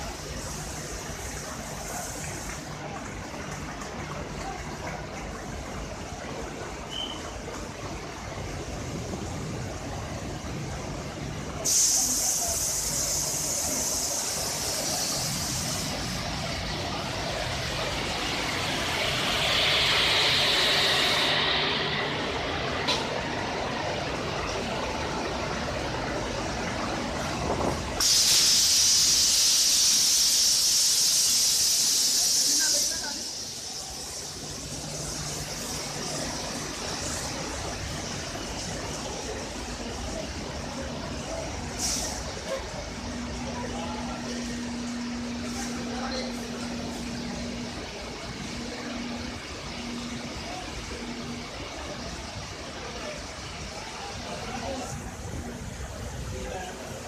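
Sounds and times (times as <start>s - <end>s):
loud air hiss: 0.0s - 2.7s, 11.5s - 25.0s, 26.8s - 57.0s
train coaches rumbling: 0.0s - 57.0s.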